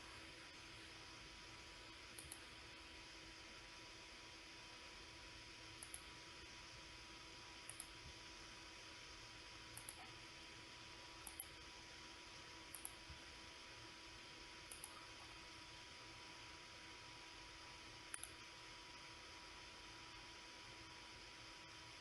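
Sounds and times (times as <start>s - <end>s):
faint hiss and hum: 0.0s - 22.0s
computer mouse double-clicking: 9.8s - 10.0s, 11.2s - 11.5s, 14.7s - 15.0s, 18.1s - 18.4s.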